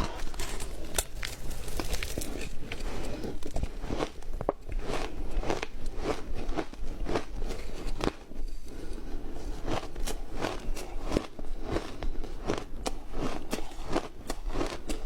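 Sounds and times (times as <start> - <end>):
ice being crunched: 0.0 - 4.2.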